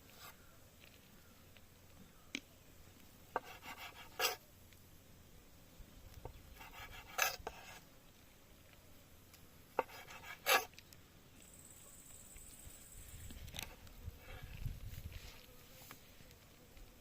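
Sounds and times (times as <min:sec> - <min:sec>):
cooking utensil scraping: 0:06.7 - 0:07.8, 0:09.8 - 0:10.7.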